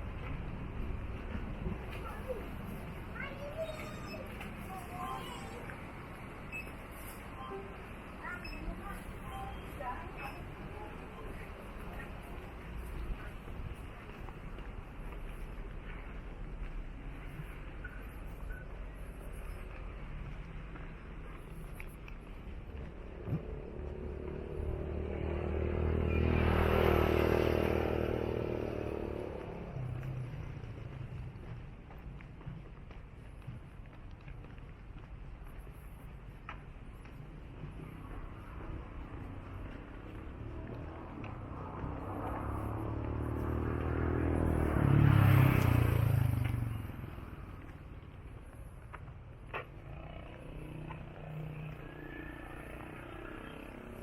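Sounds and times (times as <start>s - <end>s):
vehicle passing by: 23.0s - 31.6s, 37.6s - 48.0s, 49.8s - 54.0s.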